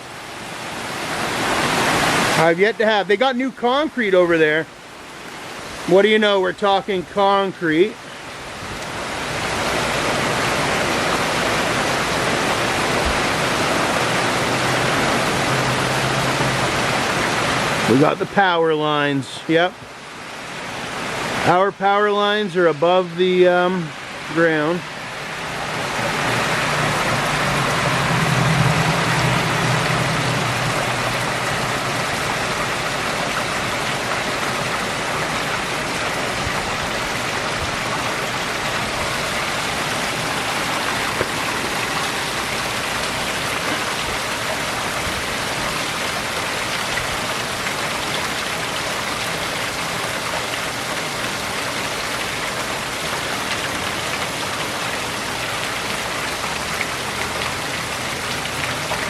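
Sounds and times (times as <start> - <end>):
rain pouring: 0.0 - 59.0
low hum: 25.9 - 32.6.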